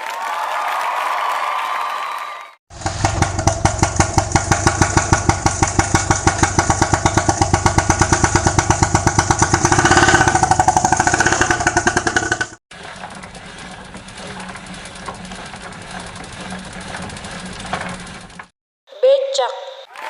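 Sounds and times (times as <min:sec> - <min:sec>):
auto-rickshaw engine running: 0:02.7 - 0:18.6.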